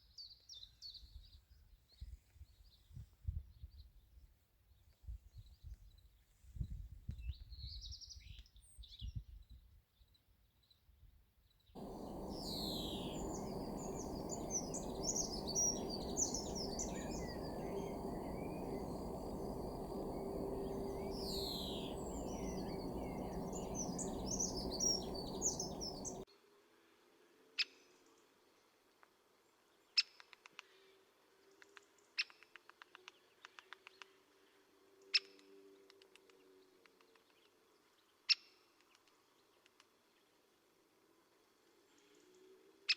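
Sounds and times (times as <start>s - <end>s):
birds chirping and calling: 11.8s - 26.2s
sharp bird chip calls: 11.8s - 26.2s
steady low noise: 11.8s - 26.2s.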